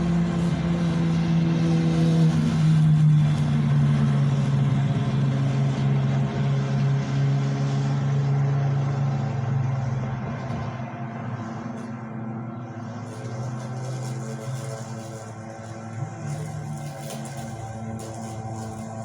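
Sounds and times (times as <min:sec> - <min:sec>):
lawn mower engine running: 0:09.2 - 0:19.0.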